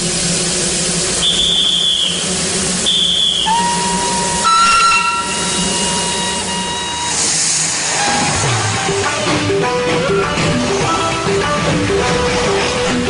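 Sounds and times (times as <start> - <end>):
steam hissing: 0.0 - 11.3
steam locomotive whistle: 1.1 - 9.1.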